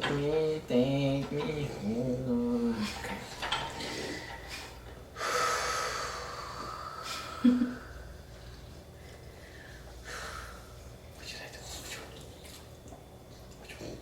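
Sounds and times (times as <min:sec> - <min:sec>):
person breathing: 0:03.8 - 0:10.9.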